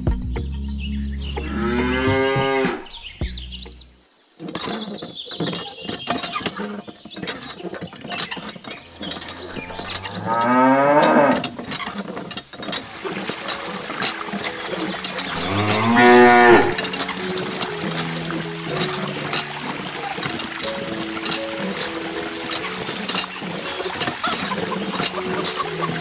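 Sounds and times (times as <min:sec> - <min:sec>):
cow mooing: 0:09.3 - 0:11.5, 0:15.3 - 0:16.8.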